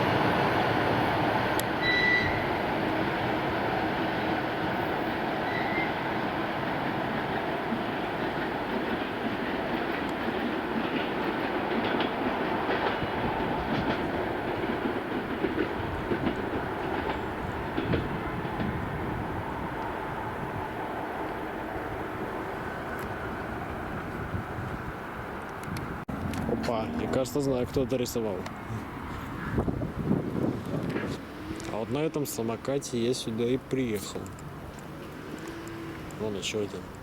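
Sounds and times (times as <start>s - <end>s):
wheels clacking over rail joints: 0.0s - 20.1s, 30.2s - 37.0s
electric train rumbling: 0.0s - 37.0s.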